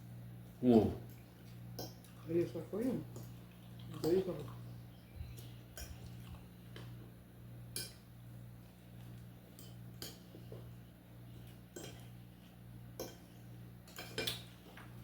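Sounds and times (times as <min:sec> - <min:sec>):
steady low hum: 0:00.0 - 0:15.0
cutlery clinking on a plate: 0:13.9 - 0:14.5.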